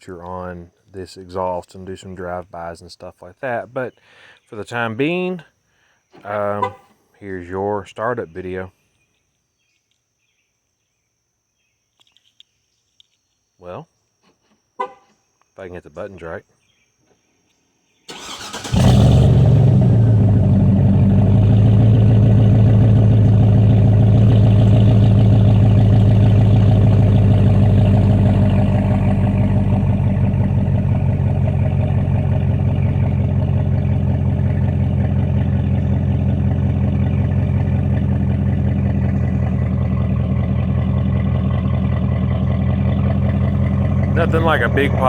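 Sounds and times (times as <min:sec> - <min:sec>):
engine cranking and starting: 0:18.1 - 0:45.0
engine idling with deep exhaust: 0:18.7 - 0:45.0.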